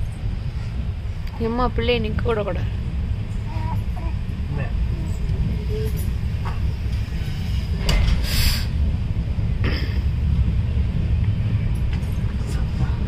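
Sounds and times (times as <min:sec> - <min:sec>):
train rumbling: 0:00.0 - 0:13.0
short bursts of hiss: 0:08.2 - 0:08.7.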